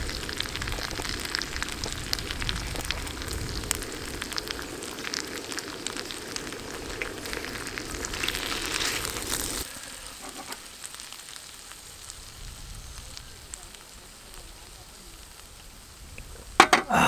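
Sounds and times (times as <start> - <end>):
crackles and pops: 0.0 - 16.7
food sizzling in a pan: 0.0 - 17.0.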